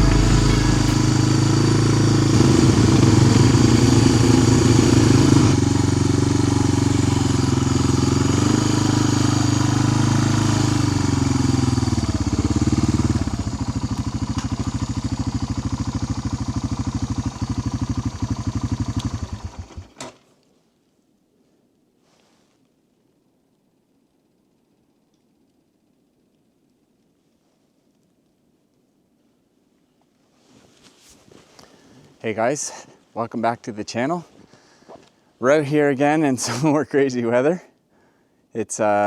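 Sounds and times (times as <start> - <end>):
vehicle engine idling: 0.0 - 19.9.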